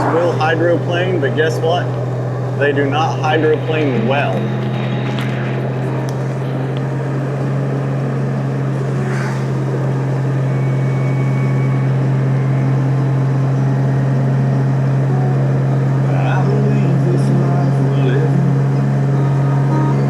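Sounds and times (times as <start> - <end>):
road and wind noise: 0.0 - 15.0
motorcycle engine humming: 0.0 - 20.0.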